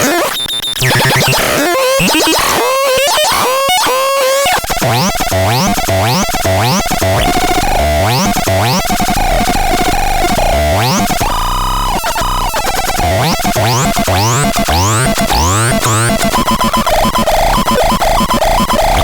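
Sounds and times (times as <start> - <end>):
electronic pitch sweeps: 4.9 - 19.0.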